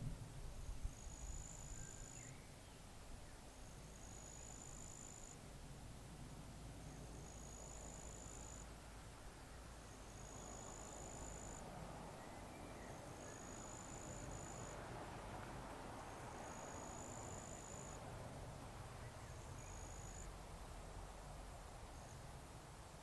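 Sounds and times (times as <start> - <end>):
faint outdoor background hiss: 0.0 - 23.0.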